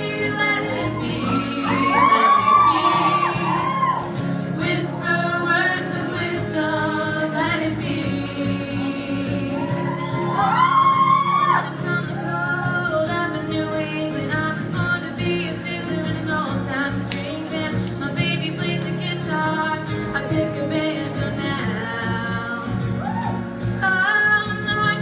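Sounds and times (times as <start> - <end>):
women singing wordless phrases: 0.0 - 10.0
audience shouting and whooping: 0.7 - 4.3, 9.6 - 12.7, 23.0 - 23.5.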